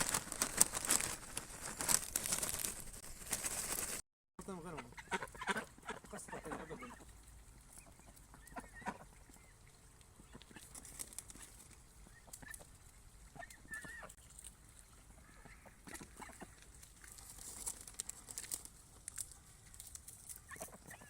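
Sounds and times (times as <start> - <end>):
waterfowl calls: 4.5 - 12.7, 13.3 - 14.2, 15.1 - 16.6, 20.4 - 21.0.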